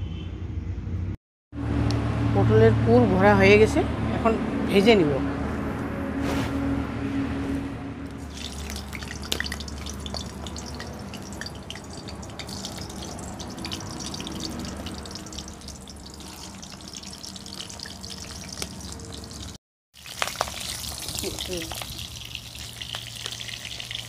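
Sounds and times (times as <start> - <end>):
vegetables sizzling in hot oil: 8.3 - 24.0.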